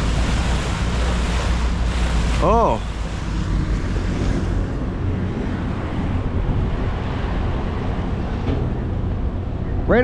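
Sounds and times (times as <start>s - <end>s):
water washing along a hull: 0.0s - 9.9s
wind on the microphone: 0.0s - 9.9s
boat engine running: 0.0s - 10.0s.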